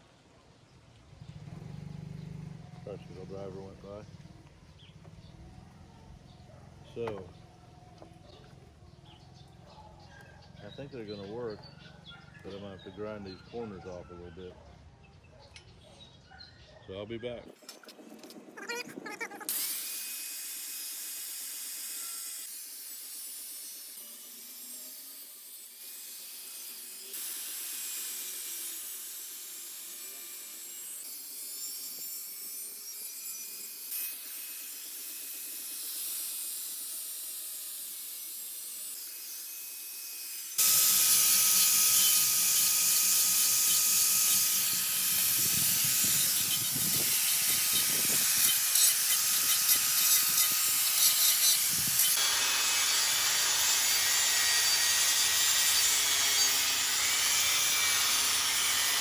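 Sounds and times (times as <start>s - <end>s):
power grinder cutting steel: 17.6s - 59.0s.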